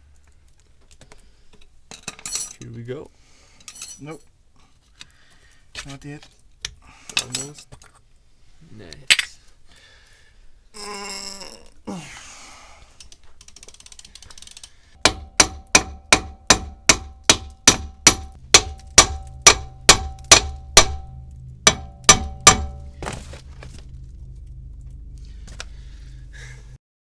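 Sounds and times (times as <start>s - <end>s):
hammer striking metal: 15.0s - 23.2s.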